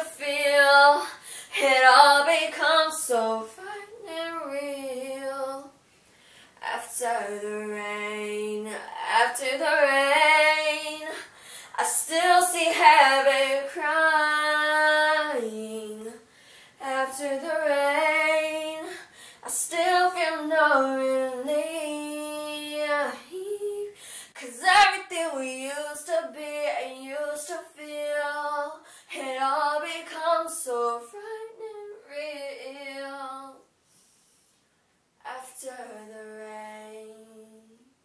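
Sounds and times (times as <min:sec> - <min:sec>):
woman singing unaccompanied: 0:00.0 - 0:05.8, 0:06.6 - 0:16.2, 0:16.8 - 0:33.6, 0:35.2 - 0:37.9
singer breathing: 0:01.1 - 0:01.6, 0:06.1 - 0:06.6, 0:11.2 - 0:11.8, 0:16.3 - 0:16.8, 0:19.0 - 0:19.4, 0:24.0 - 0:24.4.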